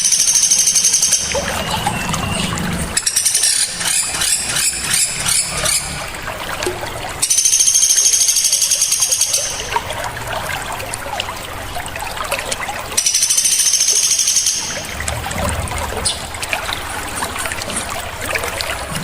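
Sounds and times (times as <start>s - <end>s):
dense buzzing bird trill: 0.0s - 6.1s, 7.2s - 9.8s, 13.0s - 15.0s.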